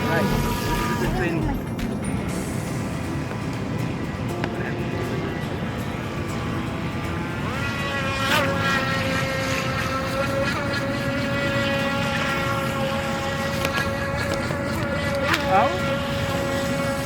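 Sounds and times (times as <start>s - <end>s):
rc boat electric motor whining: 0.0s - 2.0s, 3.0s - 17.0s.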